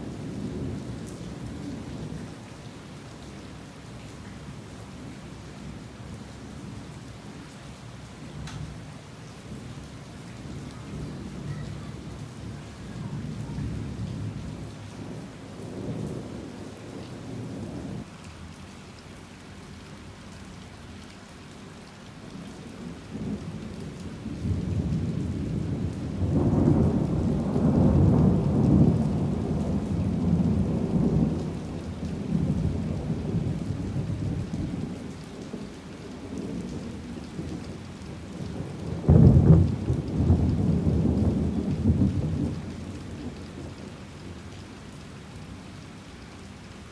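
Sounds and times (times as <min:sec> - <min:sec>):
heavy rain falling: 0:00.0 - 0:46.9
rolling thunder: 0:24.2 - 0:43.9.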